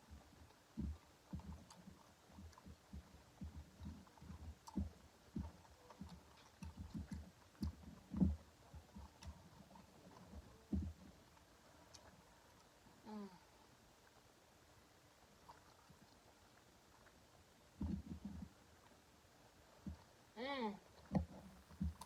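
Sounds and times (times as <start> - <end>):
chewing food: 0.0 - 22.0.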